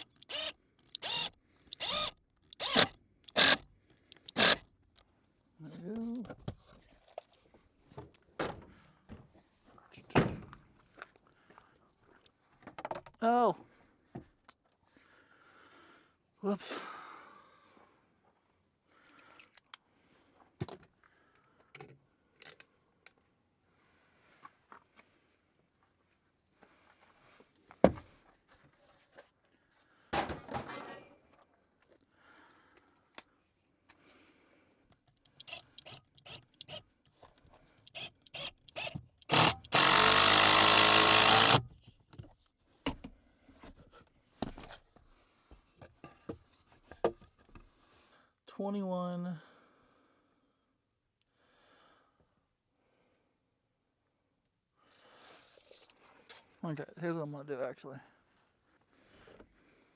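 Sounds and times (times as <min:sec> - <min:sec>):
power tool running: 0:00.0 - 0:03.6, 0:04.2 - 0:04.6, 0:35.4 - 0:36.8, 0:37.9 - 0:41.6.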